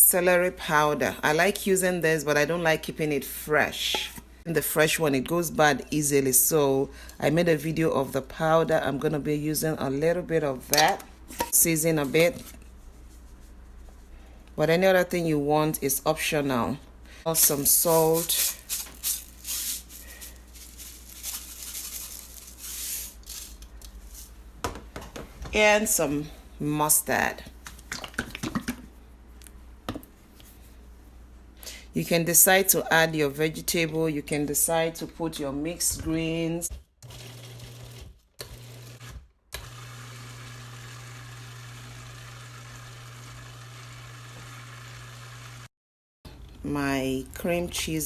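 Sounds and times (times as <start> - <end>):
salt rasping into a bowl: 17.6 - 23.6
food processor motor: 37.0 - 45.7.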